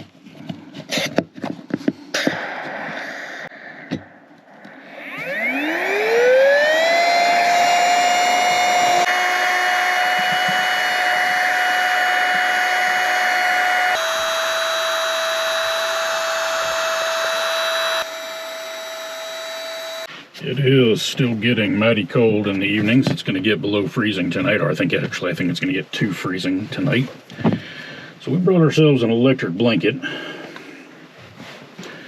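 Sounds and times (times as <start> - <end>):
electric air pump whining: 2.2 - 20.1.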